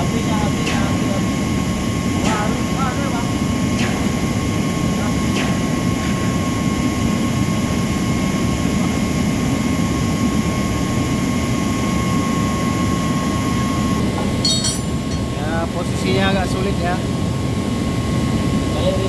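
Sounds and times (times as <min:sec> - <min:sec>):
gas torch flame rushing: 0:03.5 - 0:06.7.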